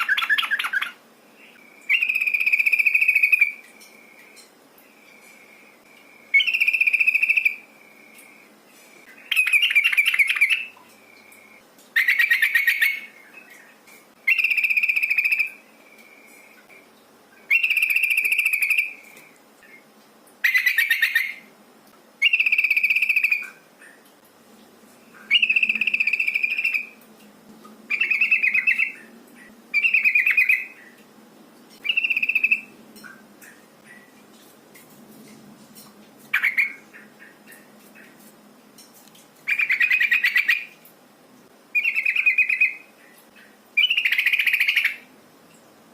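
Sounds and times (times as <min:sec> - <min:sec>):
bulbul calling: 0:31.8 - 0:34.1.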